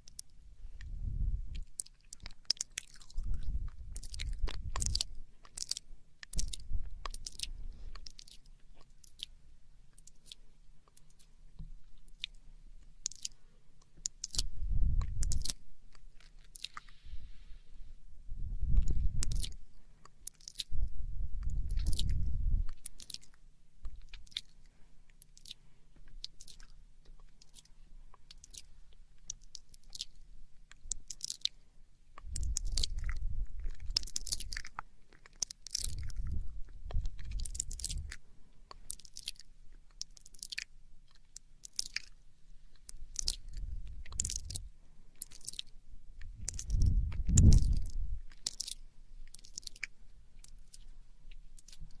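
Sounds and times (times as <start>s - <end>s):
tongue clicks and smacks: 0.0s - 16.9s, 18.7s - 31.6s, 32.2s - 52.0s
low rumble: 17.0s - 19.7s, 46.2s - 48.3s.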